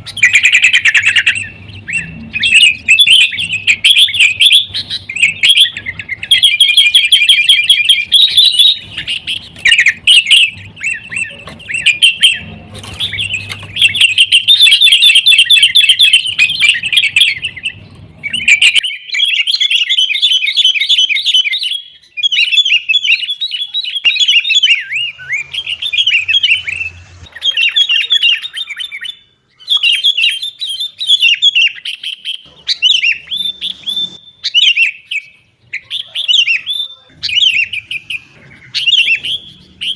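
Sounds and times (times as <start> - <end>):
bulbuls chirping: 0.0 - 39.9.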